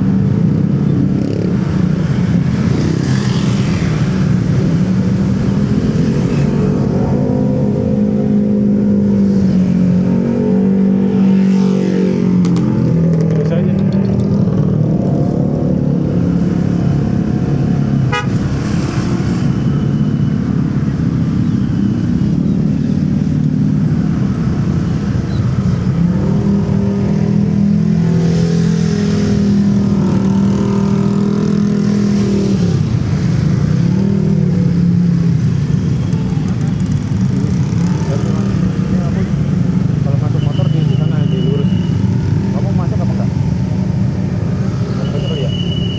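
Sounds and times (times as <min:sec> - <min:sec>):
road noise: 0:00.0 - 0:45.9
vehicle horn: 0:18.1 - 0:18.4.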